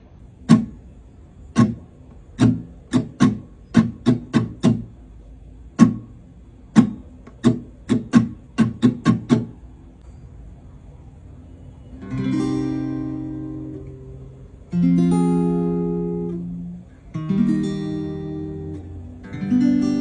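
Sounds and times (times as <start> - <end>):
acoustic guitar strumming: 0.5 - 0.8, 1.5 - 5.0, 5.8 - 9.6, 12.0 - 20.0.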